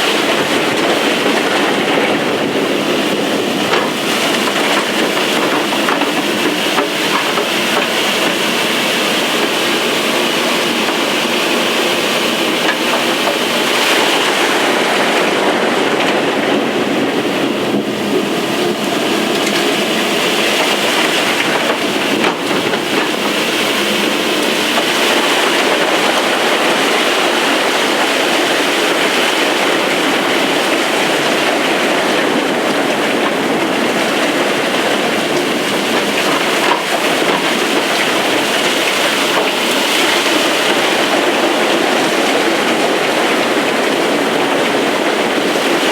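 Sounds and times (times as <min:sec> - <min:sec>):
digging machine cutting: 0:00.0 - 0:31.6
vacuum blower running loudly: 0:00.0 - 0:45.9.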